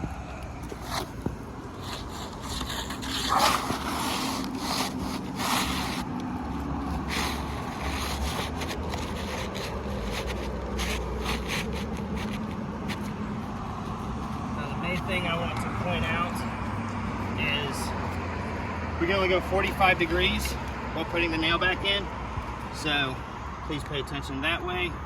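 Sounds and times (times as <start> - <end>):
roof shingles scraping: 0.7 - 13.7.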